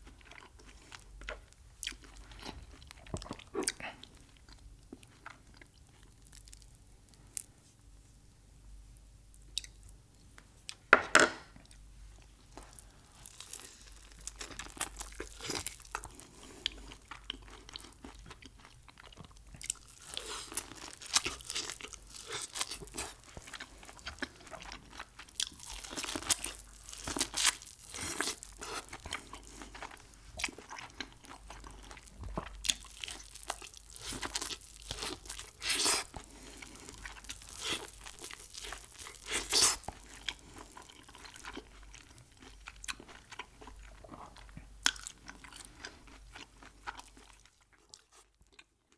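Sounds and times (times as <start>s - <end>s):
crunching bites and chewing: 13.2s - 48.7s.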